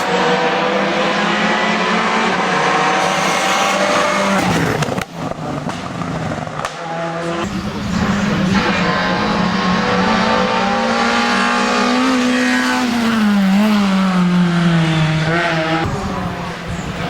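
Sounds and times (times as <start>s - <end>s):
race car engine at high revs: 0.0s - 17.0s.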